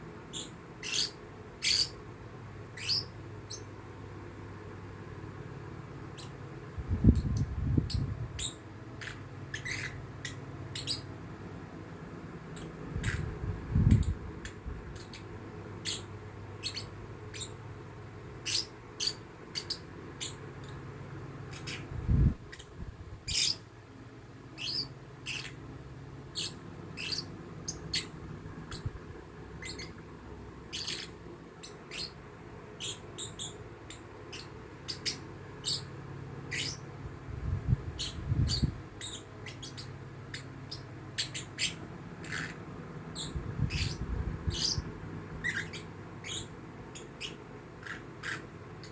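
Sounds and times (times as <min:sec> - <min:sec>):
lovebird chirping: 0:00.3 - 0:02.0, 0:02.8 - 0:03.7, 0:07.0 - 0:11.1, 0:12.6 - 0:17.6, 0:18.4 - 0:20.8, 0:21.5 - 0:23.6, 0:24.6 - 0:25.6, 0:26.3 - 0:29.0, 0:29.6 - 0:30.0, 0:30.7 - 0:32.2, 0:32.8 - 0:35.9, 0:36.5 - 0:36.9, 0:37.9 - 0:48.9.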